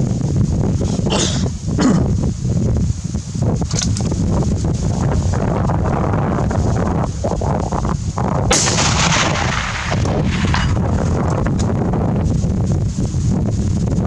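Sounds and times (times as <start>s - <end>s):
wind buffeting microphone: 0.0s - 14.0s
rifle shot: 8.5s - 11.8s.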